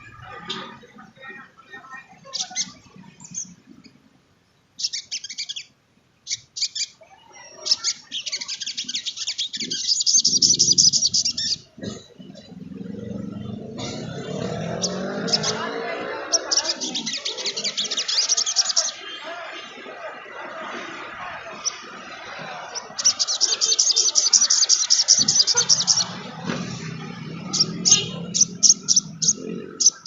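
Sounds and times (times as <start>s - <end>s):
bird trilling song: 4.8s - 15.7s, 16.3s - 19.0s, 22.7s - 30.0s.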